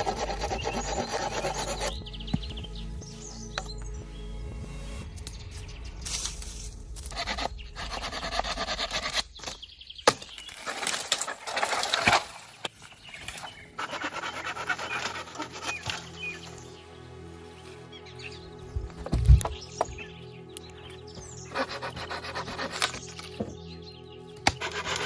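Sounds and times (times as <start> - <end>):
rasping scraping on wood: 0.0 - 2.5, 13.8 - 16.2, 21.4 - 23.4, 24.4 - 25.0.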